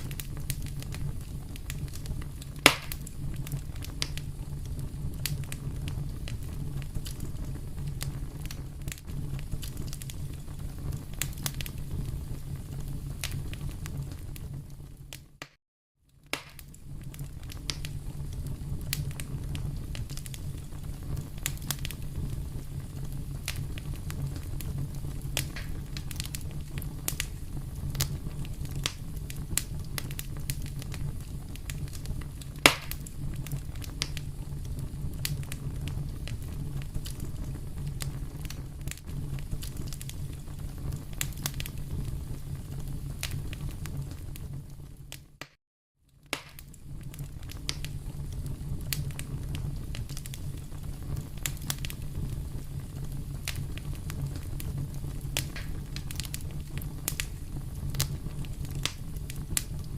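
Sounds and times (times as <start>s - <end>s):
sharp pops of burning wood: 0.0s - 12.2s, 13.2s - 14.2s, 16.2s - 44.2s, 46.2s - 59.9s
low rumble of fire: 0.0s - 59.9s
wood fire crackling: 0.0s - 59.9s.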